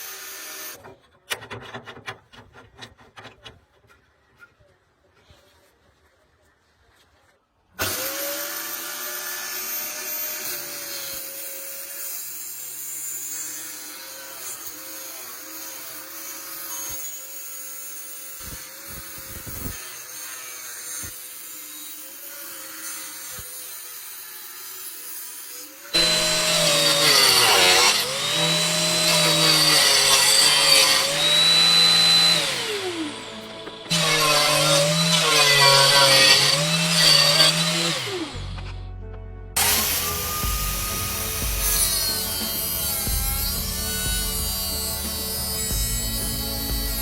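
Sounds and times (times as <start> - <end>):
grinder disc cutting workpiece: 7.8 - 38.8, 39.6 - 47.0
angle grinder whining: 25.7 - 38.8, 39.6 - 47.0.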